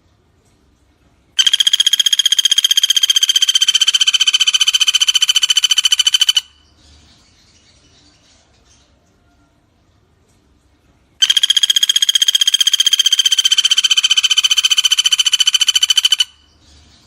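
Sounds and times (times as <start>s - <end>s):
woodpecker rattling trill: 1.4s - 6.7s, 11.2s - 17.0s.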